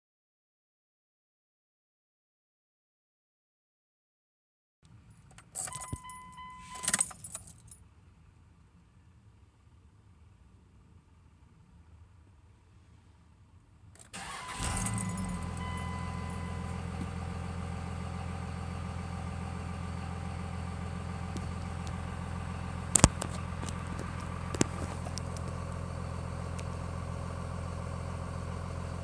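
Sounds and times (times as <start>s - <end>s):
diesel engine starting and idling: 14.0s - 29.0s.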